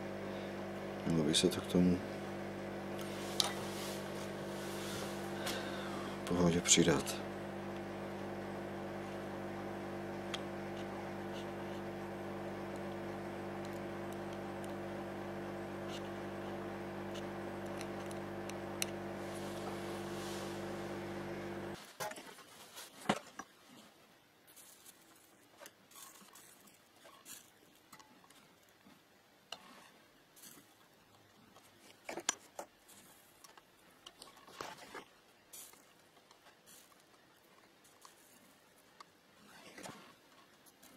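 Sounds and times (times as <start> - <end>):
small electric motor humming: 0.0 - 21.8.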